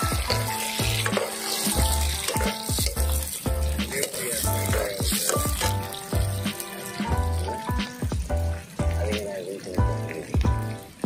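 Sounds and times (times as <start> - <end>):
background music with beat and bass: 0.0 - 11.0
onions sizzling in hot oil: 0.0 - 11.0.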